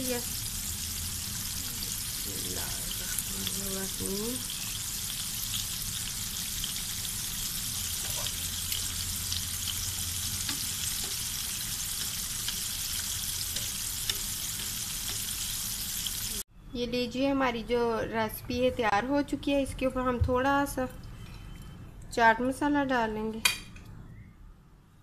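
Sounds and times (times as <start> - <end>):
chicken deep-frying in oil: 0.0 - 16.4.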